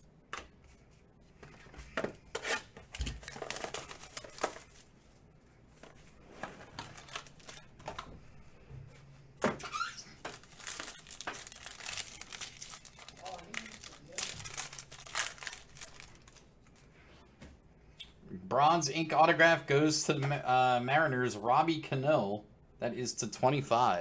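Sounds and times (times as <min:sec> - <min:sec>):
card packs crinkling and tearing: 0:02.4 - 0:05.0, 0:06.4 - 0:08.0, 0:09.6 - 0:16.8.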